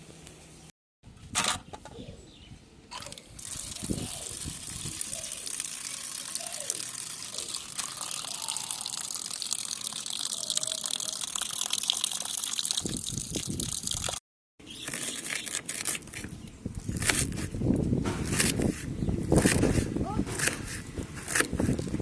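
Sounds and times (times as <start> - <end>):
water gushing from a tap: 2.9 - 14.2.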